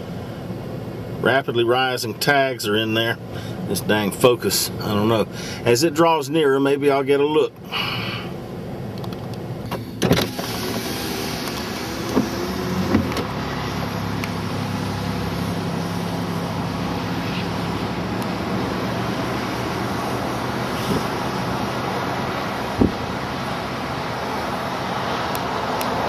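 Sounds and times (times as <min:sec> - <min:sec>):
car low hum: 0:00.0 - 0:26.0
power window motor: 0:09.7 - 0:13.9
sharp knocks: 0:22.8 - 0:23.0.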